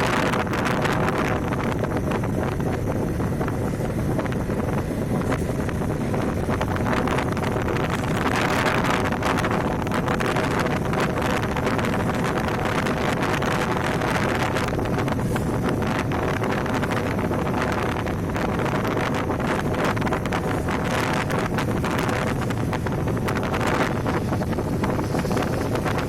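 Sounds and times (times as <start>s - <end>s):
motorcycle engine running: 0.0s - 26.0s
wind buffeting microphone: 0.0s - 26.0s.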